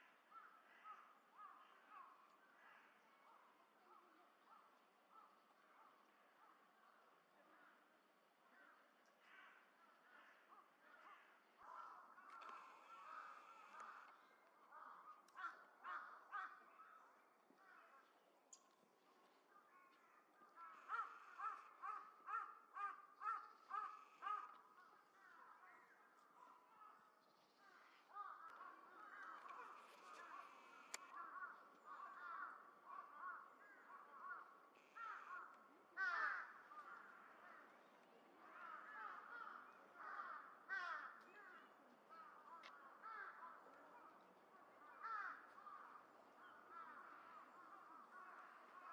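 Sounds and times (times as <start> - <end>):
crows cawing: 0.0 - 3.0, 8.5 - 18.1, 20.0 - 26.0, 27.6 - 37.8, 38.4 - 44.2, 44.8 - 48.9.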